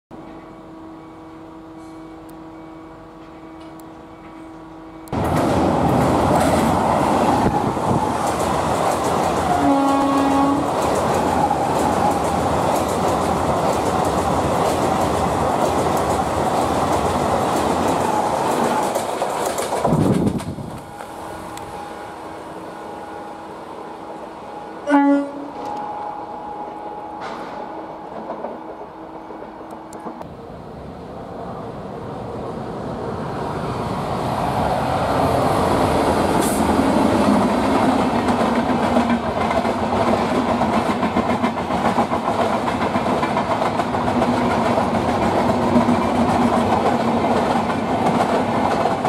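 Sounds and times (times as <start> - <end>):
electric train humming: 0.1 - 49.0
passenger train passing: 0.1 - 49.0
train horn blast: 9.4 - 10.8, 24.5 - 28.0.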